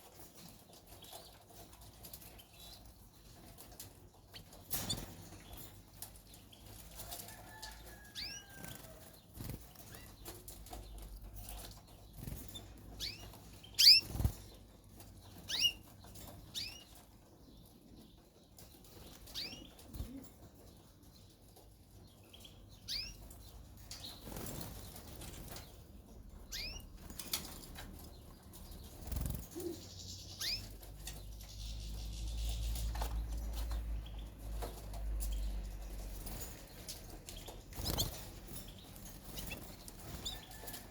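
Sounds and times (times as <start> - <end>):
birds fluttering in a cage: 0.0 - 40.9
bird chirps: 12.5 - 14.3, 15.4 - 15.8, 22.3 - 24.1, 26.4 - 27.4, 28.7 - 35.6.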